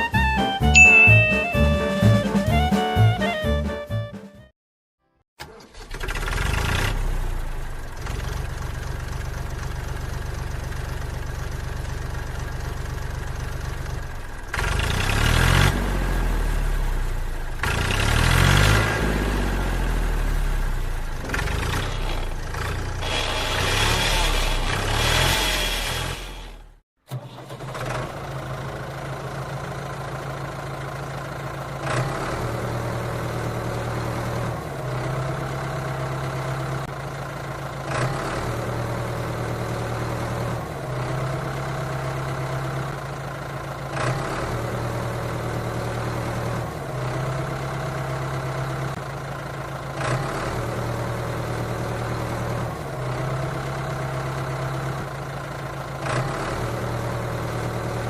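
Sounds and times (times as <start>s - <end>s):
mini tractor engine idling: 7.3s - 14.9s, 20.8s - 25.2s, 26.5s - 31.8s, 34.6s - 37.9s, 40.1s - 43.9s, 46.8s - 50.0s, 51.2s - 56.0s.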